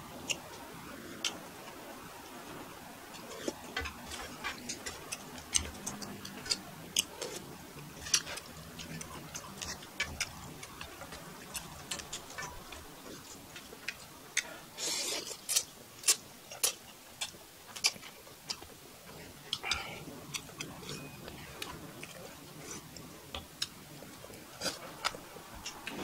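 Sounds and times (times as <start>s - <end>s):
man chewing noodles: 0.1s - 26.0s
chopsticks tapping: 3.4s - 14.5s.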